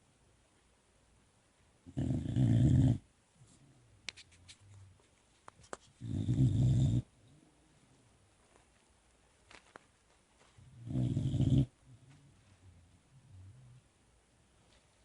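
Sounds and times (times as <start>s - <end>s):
puppy snoring: 1.8s - 3.1s, 6.0s - 7.2s, 10.7s - 13.9s.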